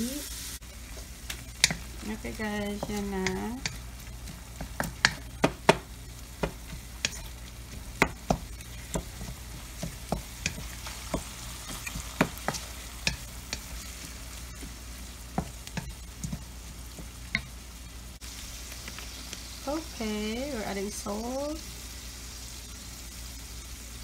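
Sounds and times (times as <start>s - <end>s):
meat sizzling in a wok: 0.0s - 24.0s
spatula knocking and scraping pan: 0.8s - 17.6s.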